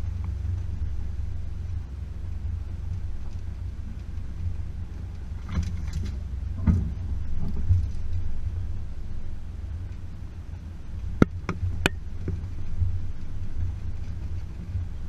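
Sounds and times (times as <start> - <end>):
car engine low rumble: 0.0 - 15.0
knocks and rattles: 5.0 - 8.4.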